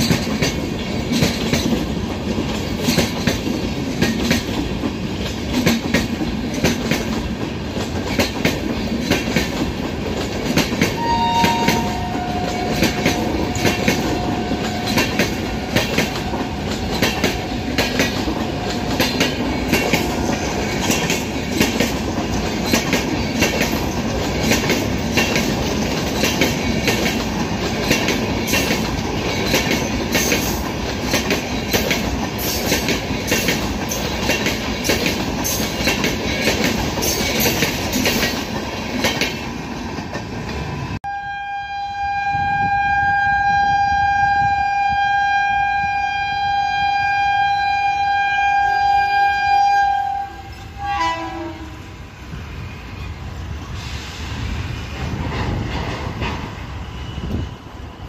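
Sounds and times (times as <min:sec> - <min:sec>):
train rumbling past: 0:00.0 - 0:58.0
locomotive horn blast: 0:11.0 - 0:17.8, 0:41.0 - 0:51.9.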